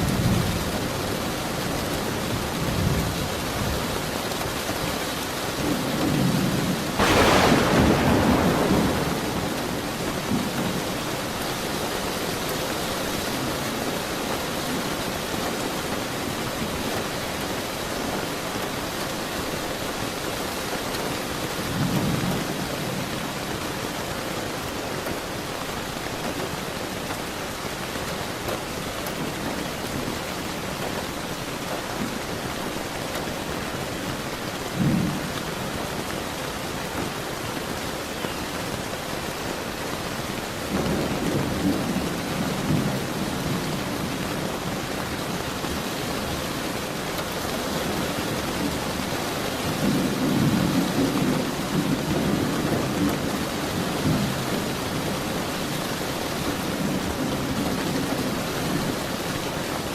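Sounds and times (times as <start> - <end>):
rain falling: 0.0 - 59.9
thunder rumbling: 5.6 - 12.6.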